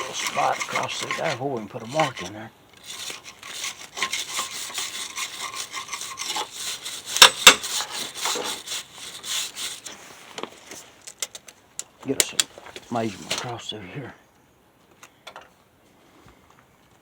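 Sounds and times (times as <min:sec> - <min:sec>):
wire brush scrubbing steel: 0:00.0 - 0:10.3.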